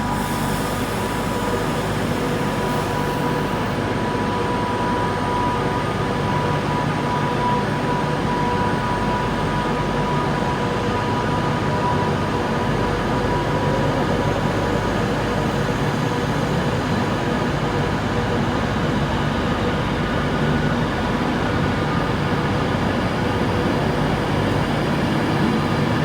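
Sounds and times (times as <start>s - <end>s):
train whine: 0.0s - 18.3s.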